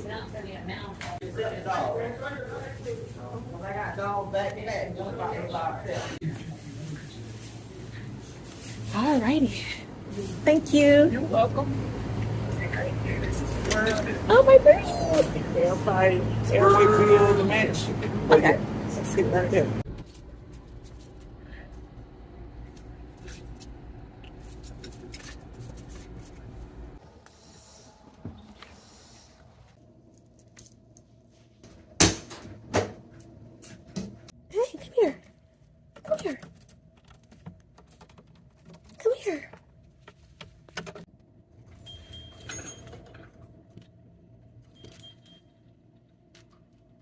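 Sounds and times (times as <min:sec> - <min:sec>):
steady low hum: 0:00.0 - 0:37.3
metallic clinking and jingling: 0:41.8 - 0:43.3, 0:44.6 - 0:45.7.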